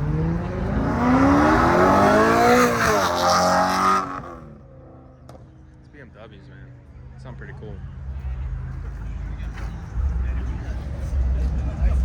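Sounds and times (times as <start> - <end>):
car engine accelerating: 0.0 - 4.6.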